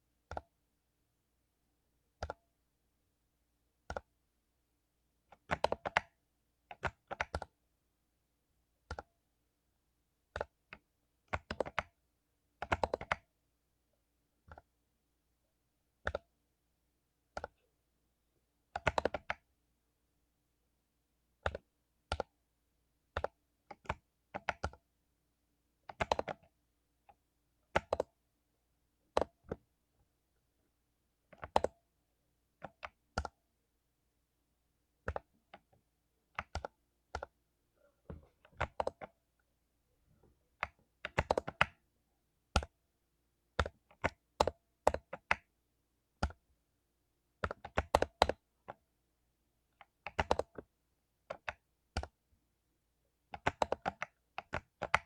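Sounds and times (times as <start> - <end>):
mechanical keyboard typing: 5.3 - 7.6, 10.3 - 12.0, 12.6 - 13.3, 18.7 - 19.4, 21.4 - 22.3, 23.1 - 24.8, 25.8 - 26.5, 27.7 - 28.1, 29.1 - 29.6, 31.3 - 31.8, 35.0 - 35.8, 36.4 - 37.4, 38.4 - 39.2, 40.6 - 41.8, 42.5 - 42.8, 43.6 - 45.5, 47.4 - 48.8, 49.7 - 52.2, 53.3 - 55.0.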